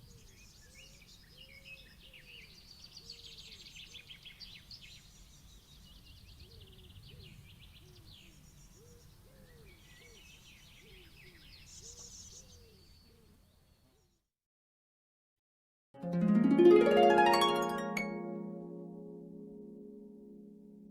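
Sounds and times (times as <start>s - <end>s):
songbirds chirping and trilling: 0.0s - 14.2s.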